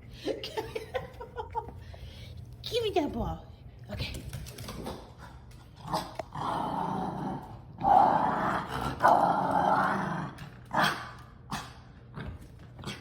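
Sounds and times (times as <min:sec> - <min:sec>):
dogs growling in play: 0:04.8 - 0:13.0.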